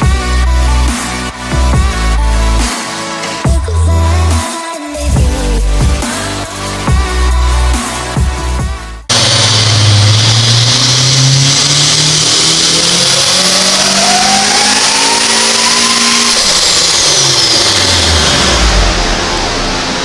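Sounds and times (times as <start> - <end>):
car engine revving at full throttle: 9.1 - 20.0
supercharger whine: 9.1 - 20.0.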